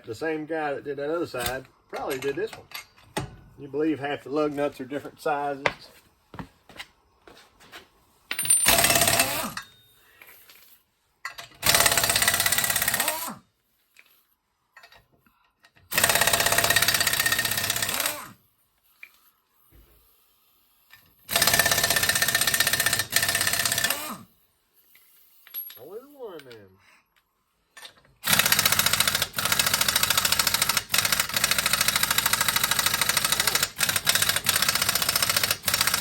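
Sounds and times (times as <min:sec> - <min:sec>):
impact wrench hammering: 0:15.9 - 0:18.3, 0:21.3 - 0:24.2, 0:28.2 - 0:36.0.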